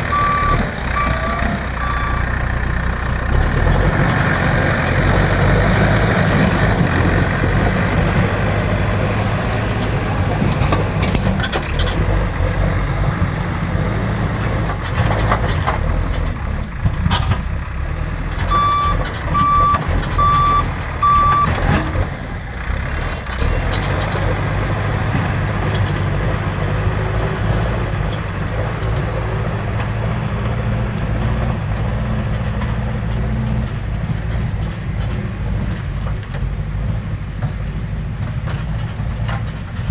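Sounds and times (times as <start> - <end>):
diesel engine running: 0.0 - 39.9
reversing alarm beeping: 0.1 - 2.4, 18.5 - 21.6.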